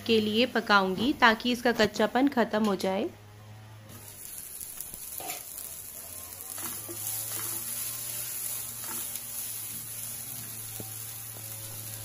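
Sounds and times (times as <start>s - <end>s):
beans sizzling in a pan: 3.9s - 12.0s
spatula scraping a pan: 5.1s - 5.7s, 6.5s - 12.0s.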